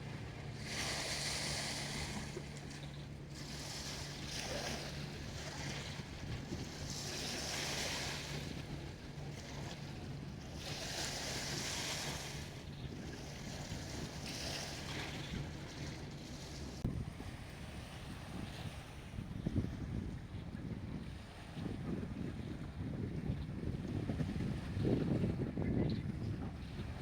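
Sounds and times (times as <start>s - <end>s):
sea waves washing on shore: 0.0s - 19.3s.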